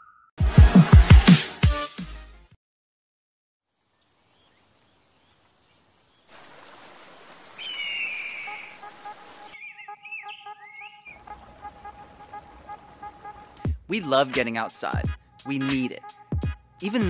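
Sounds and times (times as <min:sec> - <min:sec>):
whistled bird call: 0:07.6 - 0:08.9, 0:09.5 - 0:11.2.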